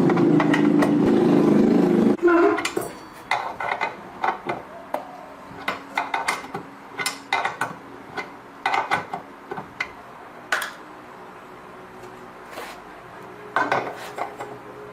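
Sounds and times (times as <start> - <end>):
metal tools clinking: 2.6 - 3.9.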